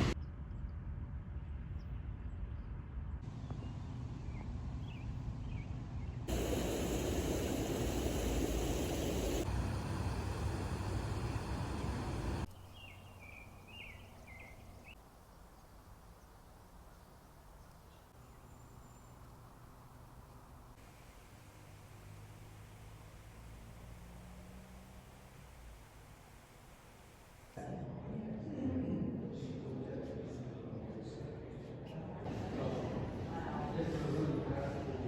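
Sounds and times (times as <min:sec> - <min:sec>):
rumble: 0:00.0 - 0:12.5
wind: 0:00.0 - 0:35.0.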